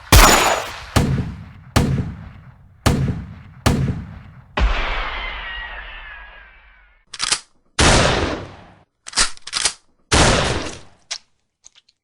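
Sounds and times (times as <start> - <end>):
gunshots echoing: 0.0 - 4.4.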